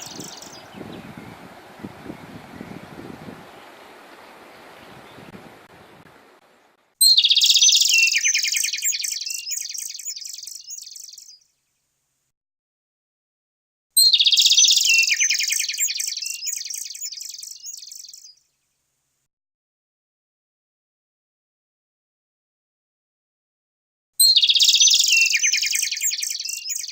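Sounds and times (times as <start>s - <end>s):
songbird singing high trills: 0.0s - 6.0s, 7.0s - 11.5s, 14.0s - 18.4s, 24.2s - 26.9s.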